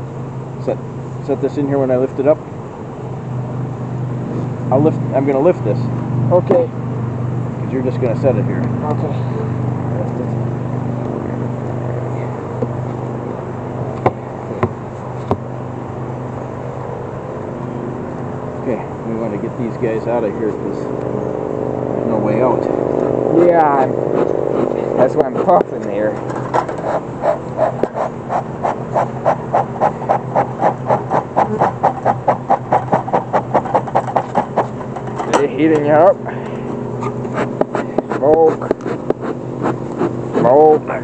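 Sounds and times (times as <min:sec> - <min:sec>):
steady low hum: 0:00.0 - 0:41.0
sharp knocks on wood boxes: 0:14.0 - 0:15.5
smoker bellows puffing: 0:23.0 - 0:40.6.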